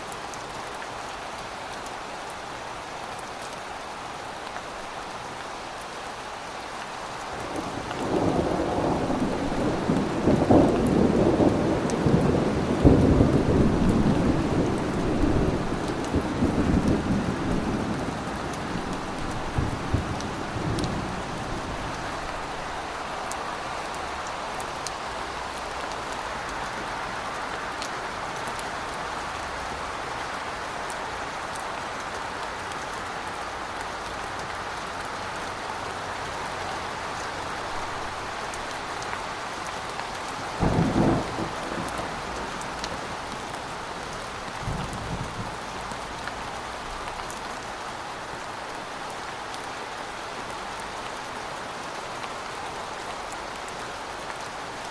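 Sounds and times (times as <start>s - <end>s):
steady rain: 0.0s - 54.9s
thunder rumbling: 40.6s - 43.4s.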